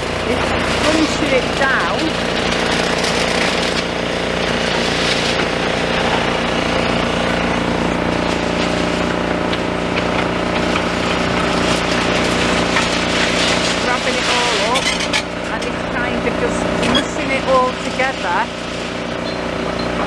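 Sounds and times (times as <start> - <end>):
excavator engine and hydraulics: 0.0 - 20.0
crusher jaws crunching rebar: 0.1 - 15.9.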